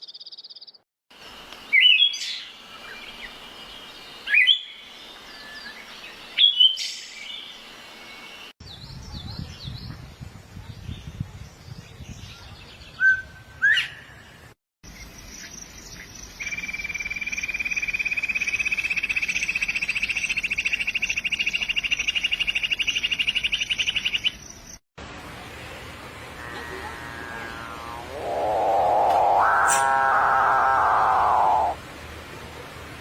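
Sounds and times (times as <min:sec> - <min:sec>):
rapid rising bird trill: 0:26.4 - 0:31.8
sharp upward-sweeping bird calls: 0:26.4 - 0:31.8.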